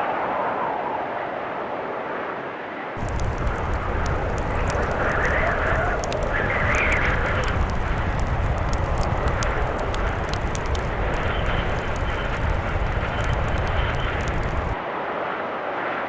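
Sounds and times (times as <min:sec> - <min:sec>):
blizzard wind rumbling: 0:03.0 - 0:14.8
wood fire crackling: 0:03.0 - 0:14.8.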